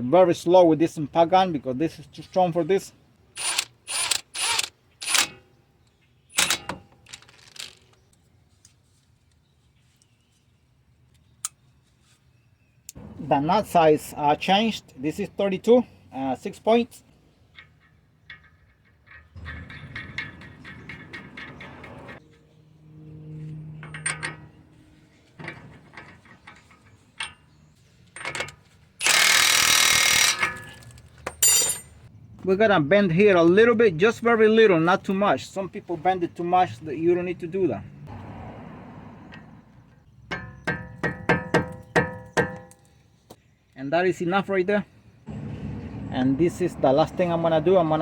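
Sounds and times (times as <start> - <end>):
hand ratchet clicking: 29.0 - 30.6.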